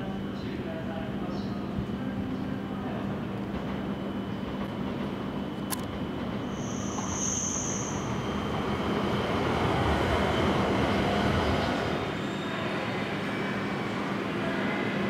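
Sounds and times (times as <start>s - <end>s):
train running noise: 0.0s - 15.0s
brief high squeal: 6.5s - 8.2s.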